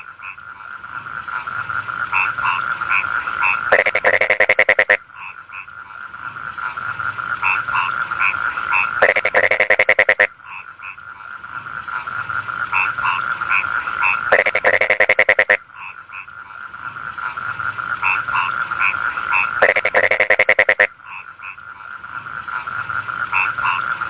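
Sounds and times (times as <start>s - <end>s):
fast-pulsed frog croaking: 0.0s - 24.0s
short frog croaks: 0.0s - 24.0s
high frog trill: 2.0s - 5.0s, 7.4s - 10.3s, 12.7s - 15.6s, 18.0s - 20.9s.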